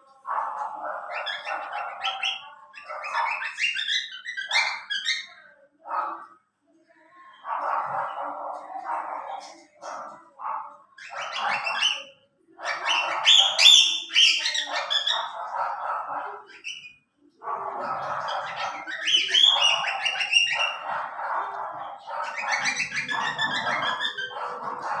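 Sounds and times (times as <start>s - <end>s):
cockatiel chicks chirping: 0.6s - 5.5s, 11.0s - 15.6s, 16.2s - 17.0s, 17.6s - 25.0s.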